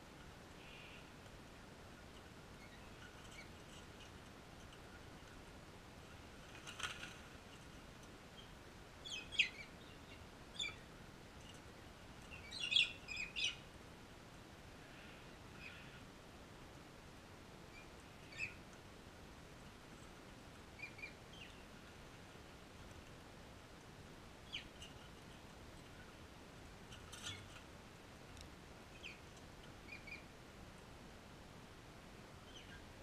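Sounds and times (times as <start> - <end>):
birds chirping: 2.0 - 5.5, 6.2 - 13.7, 17.7 - 18.7, 20.0 - 22.0, 24.4 - 26.2, 28.9 - 30.4, 32.4 - 33.0.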